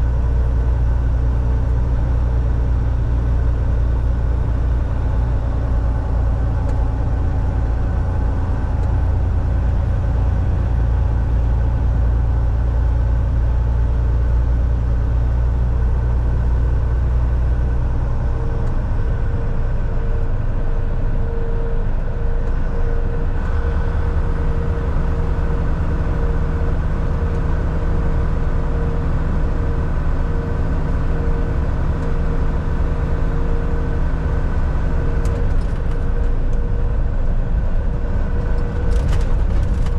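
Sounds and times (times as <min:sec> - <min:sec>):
truck diesel engine drone: 0:00.0 - 0:39.9
tyre and road noise: 0:17.4 - 0:39.9.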